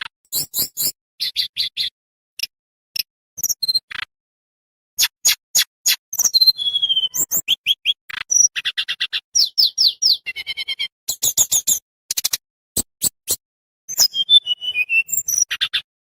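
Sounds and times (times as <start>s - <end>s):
songbird singing: 6.1s - 11.6s, 13.9s - 15.6s.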